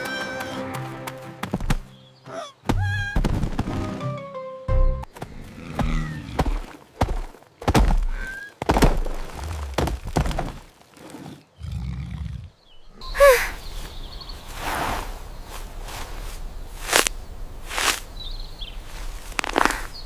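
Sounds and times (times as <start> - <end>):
cartoon thuds and knocks: 2.6 - 3.9, 5.8 - 9.2.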